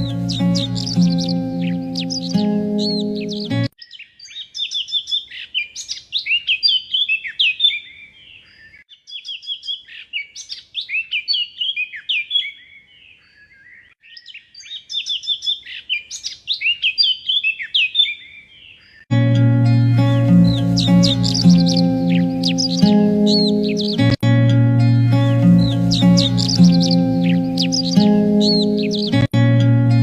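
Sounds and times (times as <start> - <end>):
music: 0.0 - 3.8, 19.1 - 30.0
songbird chirps and trills: 0.0 - 30.0.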